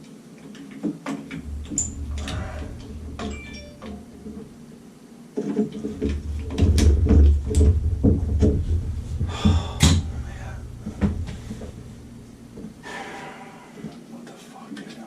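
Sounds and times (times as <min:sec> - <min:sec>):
low rumble: 0:01.4 - 0:04.8, 0:05.8 - 0:13.0
knocks and clicks of objects handled: 0:05.5 - 0:11.9.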